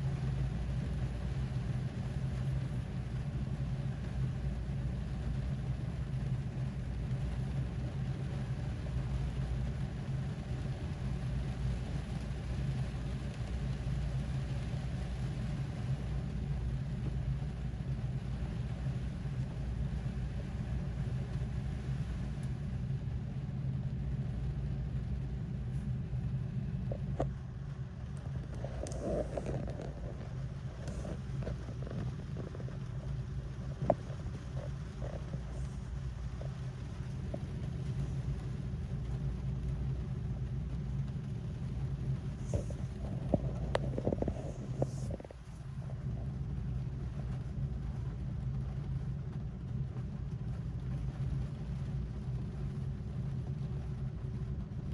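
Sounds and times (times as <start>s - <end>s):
rain on a car roof: 0.0s - 54.9s.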